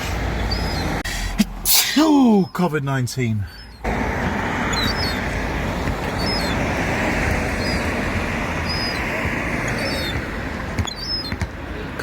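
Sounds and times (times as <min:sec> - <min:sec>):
background rumble: 0:00.0 - 0:12.0
young gull peeping: 0:00.4 - 0:00.9, 0:04.7 - 0:05.3, 0:06.0 - 0:06.7, 0:07.5 - 0:08.0, 0:08.6 - 0:09.1, 0:10.8 - 0:11.4.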